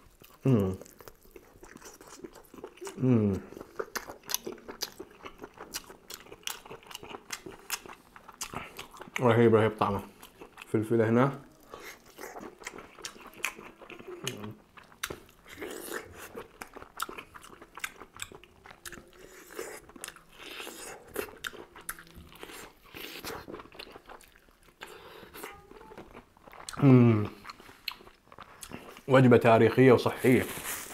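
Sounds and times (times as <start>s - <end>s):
person chewing crunchy food: 0.0s - 10.7s, 11.4s - 29.2s.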